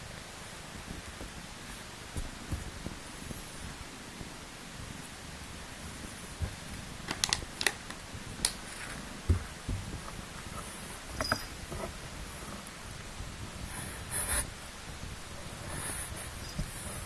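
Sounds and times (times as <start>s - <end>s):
soft rustling: 0.0s - 17.0s
steady hiss: 0.0s - 17.0s
light thumps: 9.2s - 12.0s.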